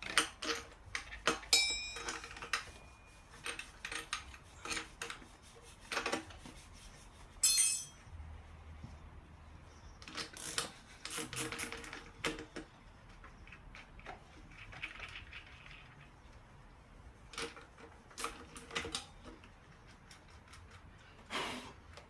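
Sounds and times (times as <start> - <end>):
metal hand tools clinking: 1.5 - 3.3, 7.4 - 8.0.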